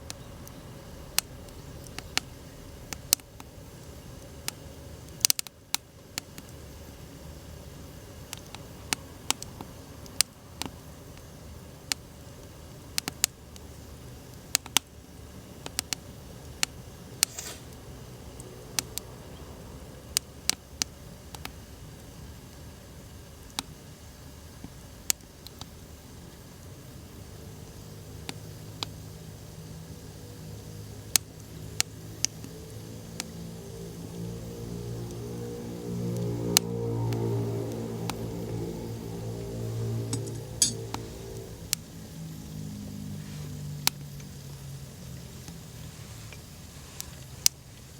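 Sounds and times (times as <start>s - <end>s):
wood fire crackling and popping: 0.0s - 27.1s
low steady hiss: 0.0s - 47.9s.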